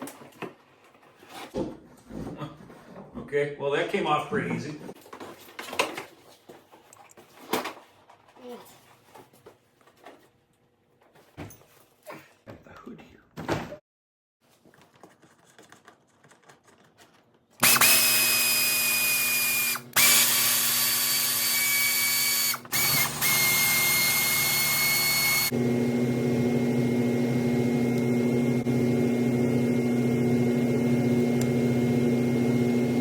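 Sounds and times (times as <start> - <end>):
power tool whining: 17.6 - 33.0.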